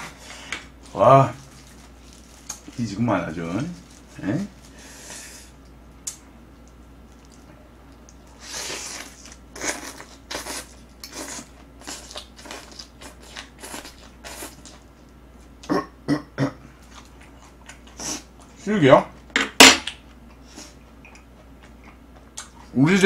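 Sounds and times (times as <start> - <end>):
wet chewing and lip-smacking: 20.3 - 22.7.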